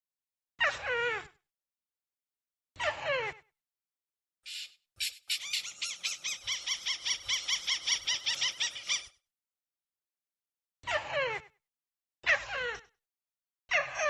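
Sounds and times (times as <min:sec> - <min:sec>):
crake calling: 0:04.5 - 0:09.0.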